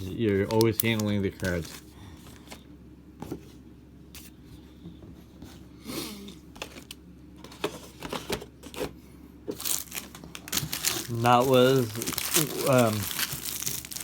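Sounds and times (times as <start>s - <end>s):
soft rustle of cards: 0.1s - 2.6s, 9.6s - 14.0s.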